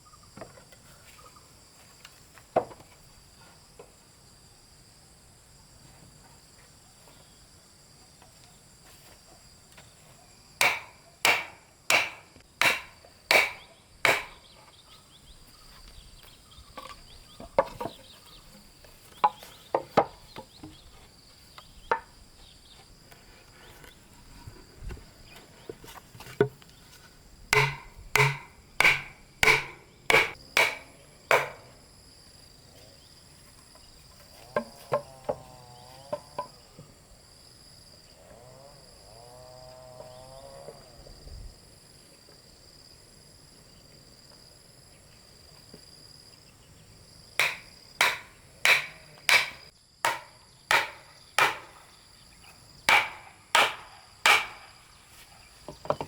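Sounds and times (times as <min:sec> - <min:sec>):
insects singing: 0:09.7 - 0:43.0, 0:44.8 - 0:56.0
hand tool striking wood: 0:10.6 - 0:14.4, 0:19.2 - 0:20.8, 0:27.5 - 0:31.7, 0:47.4 - 0:51.8, 0:52.9 - 0:54.8.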